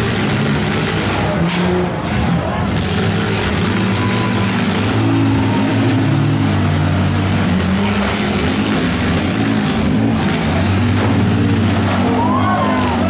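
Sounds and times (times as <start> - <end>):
engines revving: 0.0 - 13.0.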